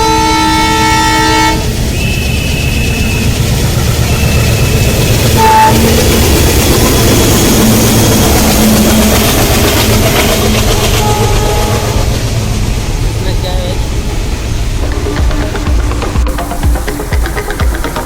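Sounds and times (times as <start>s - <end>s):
train rumbling: 0.0s - 18.0s
brief tone: 1.9s - 6.0s.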